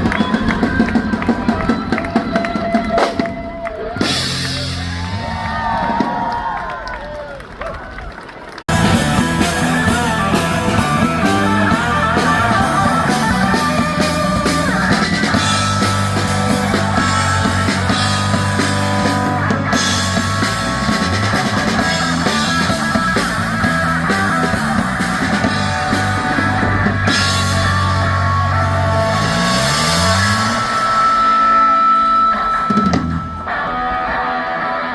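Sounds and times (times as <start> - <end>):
bass line: 0.0 - 6.3, 8.7 - 34.9
rock music with guitar and drums: 8.7 - 34.9.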